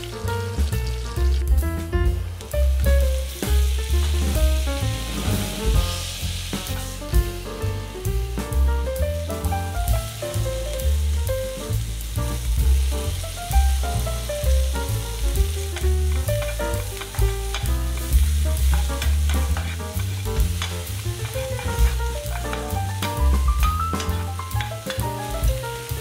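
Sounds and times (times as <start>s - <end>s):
wooden spatula scraping: 0.0s - 2.8s, 15.4s - 25.5s
background music: 0.0s - 26.0s
vegetables sizzling in oil: 0.0s - 26.0s.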